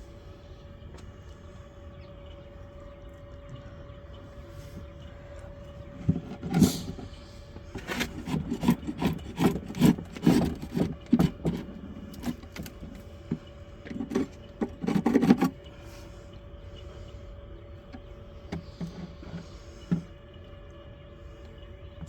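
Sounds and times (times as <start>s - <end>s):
scraping on wooden beehive: 5.8s - 15.6s, 18.5s - 20.1s.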